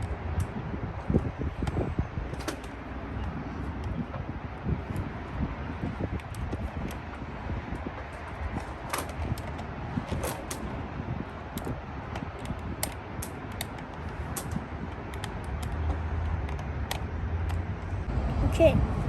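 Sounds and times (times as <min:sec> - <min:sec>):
plastic toy car clicks and taps: 0:11.5 - 0:17.9.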